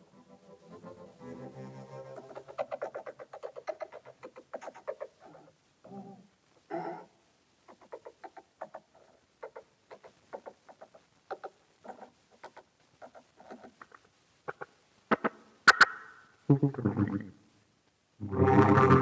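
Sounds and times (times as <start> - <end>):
harmonica chopped pulses: 18.2 - 19.0.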